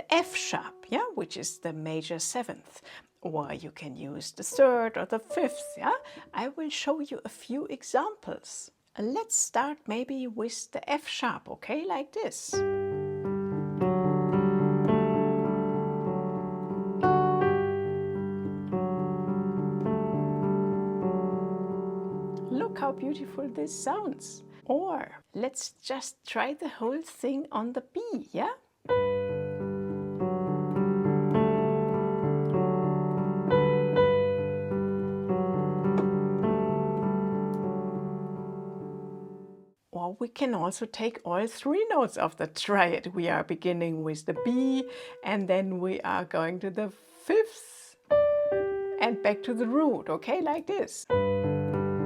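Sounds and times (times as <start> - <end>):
piano broken chords: 5.3 - 6.3, 12.6 - 24.6, 28.9 - 39.7, 48.2 - 49.8, 51.1 - 52.0.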